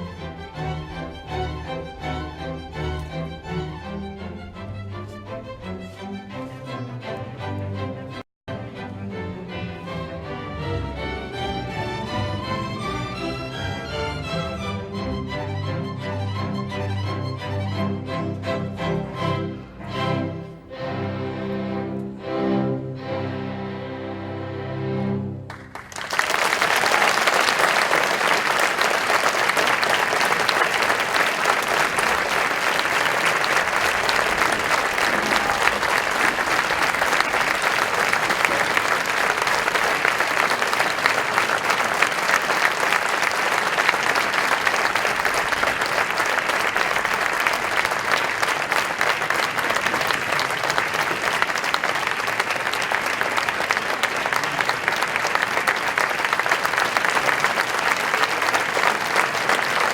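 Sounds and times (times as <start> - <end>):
audience applauding: 25.4 - 59.9.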